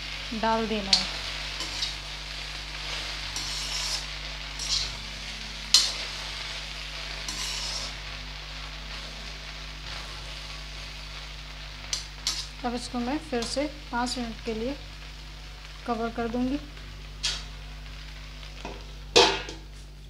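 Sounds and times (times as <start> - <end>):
vegetables sizzling in a pan: 0.0 - 20.0
spatula scraping a metal pan: 1.6 - 2.0, 2.9 - 5.0, 5.7 - 6.3, 7.2 - 8.0, 12.2 - 12.5.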